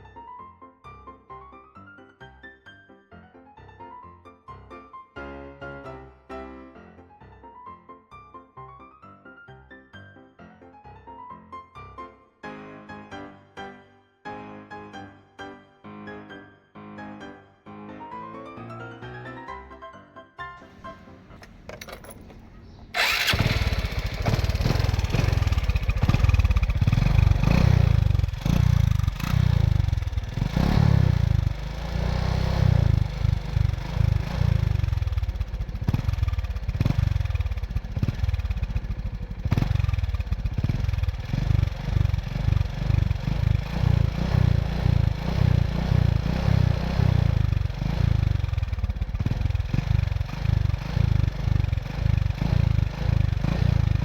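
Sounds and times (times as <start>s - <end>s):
engine chugging rumble: 21.4s - 54.0s.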